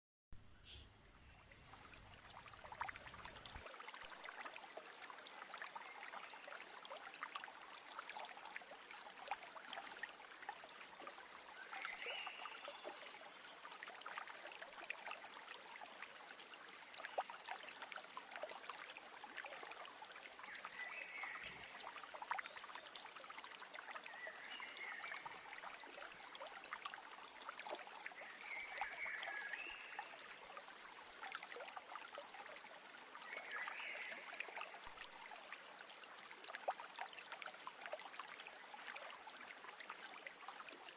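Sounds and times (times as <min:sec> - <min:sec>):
stream water babbling: 0:00.4 - 0:40.9
short bird calls: 0:00.5 - 0:02.2.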